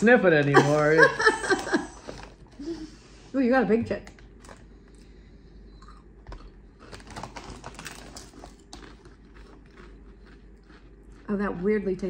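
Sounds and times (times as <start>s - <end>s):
crunching potato chips: 5.9s - 11.4s.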